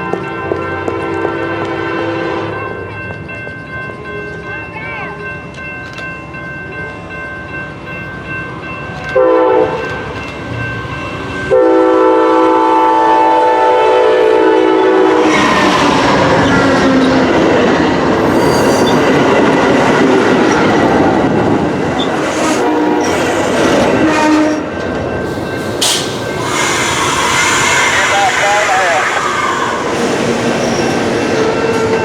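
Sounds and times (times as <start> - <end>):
train wheels rumbling on rails: 0.0 - 32.0
locomotive air horn blasts: 0.6 - 2.6, 9.2 - 9.8, 11.5 - 15.4, 22.4 - 23.2, 23.9 - 24.7.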